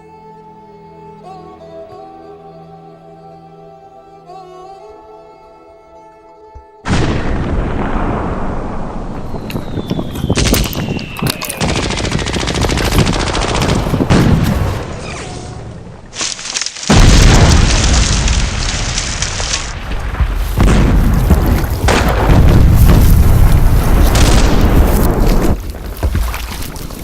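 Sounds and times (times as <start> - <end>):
loud explosion with rumble: 6.9 - 15.0, 16.9 - 25.6
machine-gun fire: 10.4 - 14.9.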